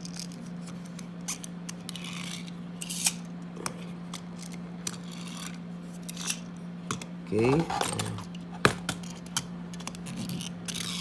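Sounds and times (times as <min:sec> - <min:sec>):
toy gear whirr: 0:01.3 - 0:03.3, 0:04.4 - 0:06.4, 0:09.8 - 0:11.0.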